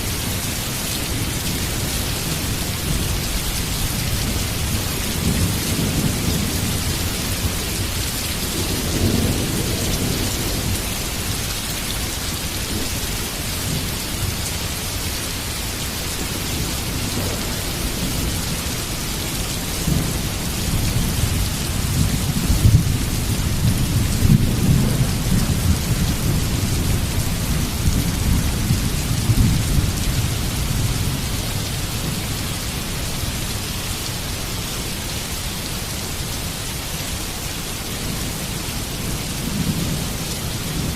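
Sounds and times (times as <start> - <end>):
heavy rain falling: 0.0 - 40.9
low rolling thunder: 3.9 - 11.4, 16.2 - 32.4.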